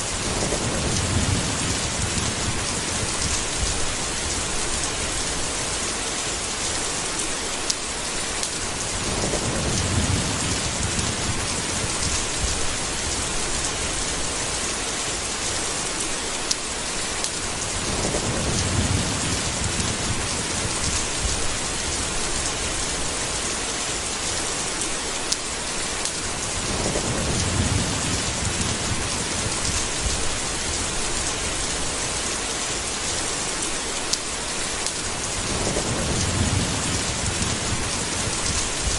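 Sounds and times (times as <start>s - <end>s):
rolling thunder: 0.0s - 5.8s, 8.7s - 14.4s, 17.6s - 23.2s, 26.3s - 32.2s, 35.1s - 38.9s
heavy rain: 0.0s - 38.9s.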